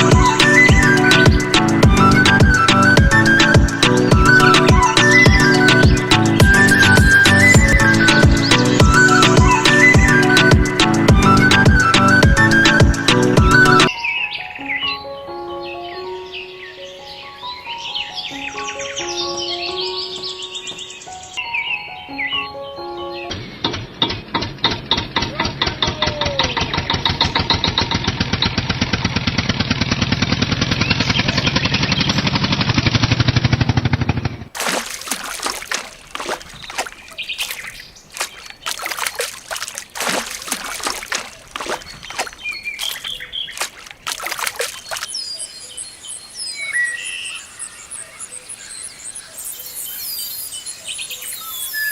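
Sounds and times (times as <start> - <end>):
birds chirping: 0.0 - 29.3, 30.3 - 32.8, 34.0 - 51.9
mechanical chugging: 24.0 - 34.5
water splashing and pouring: 34.5 - 45.2
insects: 45.0 - 51.9.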